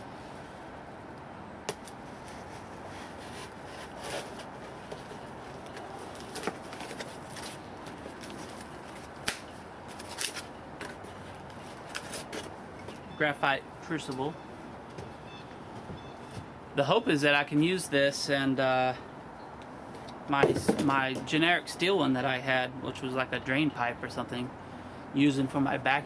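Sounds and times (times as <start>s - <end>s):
packaging clicks and rustles: 1.8s - 12.5s.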